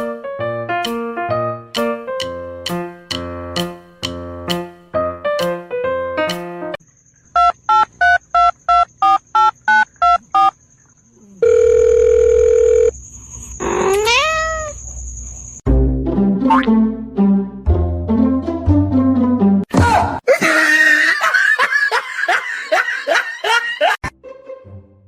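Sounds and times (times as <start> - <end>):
piano music: 0.0 - 6.8.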